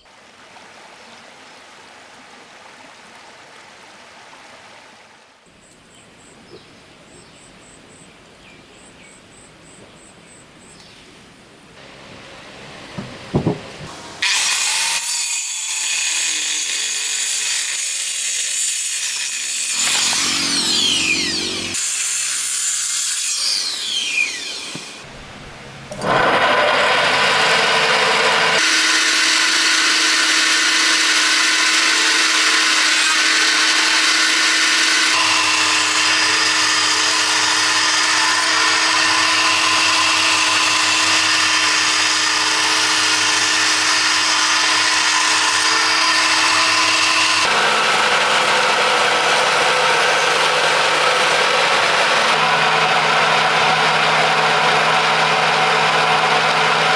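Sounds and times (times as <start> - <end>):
power tool motor whining: 19.6 - 56.9.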